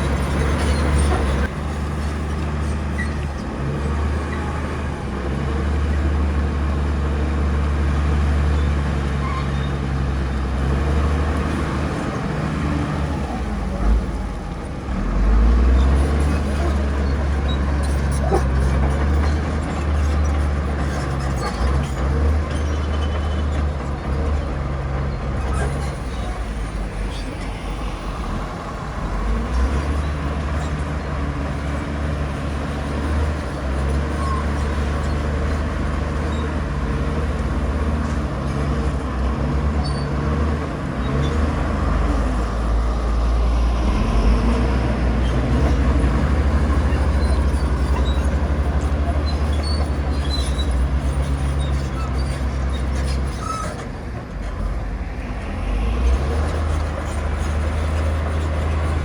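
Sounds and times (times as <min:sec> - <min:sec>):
diesel engine drone: 0:00.0 - 0:59.0.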